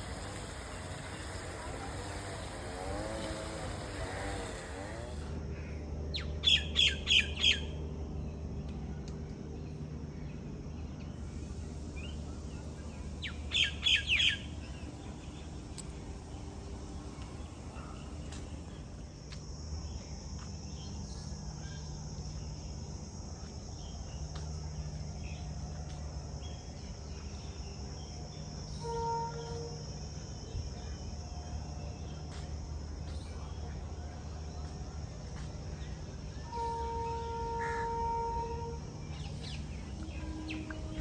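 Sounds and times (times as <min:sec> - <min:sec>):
insects droning: 0:00.0 - 0:41.0
low steady hum: 0:00.0 - 0:41.0
faint bird chirps: 0:05.5 - 0:08.4, 0:11.4 - 0:19.0.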